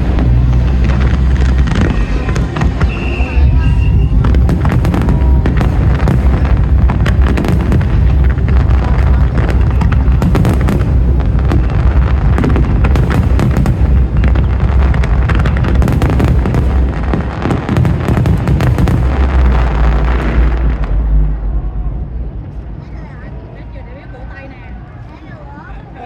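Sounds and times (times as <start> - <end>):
sharp cracks: 0.0 - 21.2
firework bursts: 0.0 - 21.5
deep continuous boom: 0.0 - 24.1.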